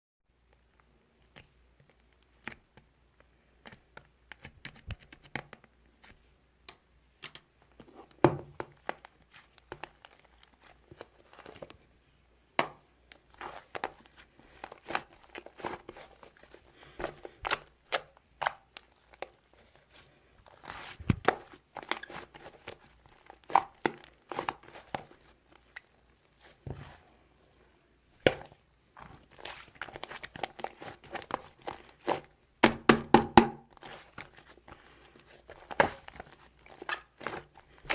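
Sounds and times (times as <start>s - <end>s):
dough squished by hand: 0.6s - 11.9s, 12.5s - 37.9s.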